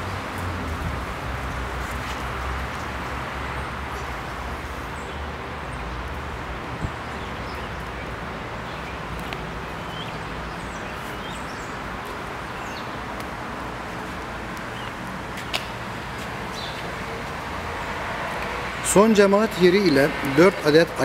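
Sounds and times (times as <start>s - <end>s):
outdoor background noise: 0.0s - 21.0s
birds chirping: 7.0s - 13.2s, 14.6s - 15.6s, 16.3s - 17.0s.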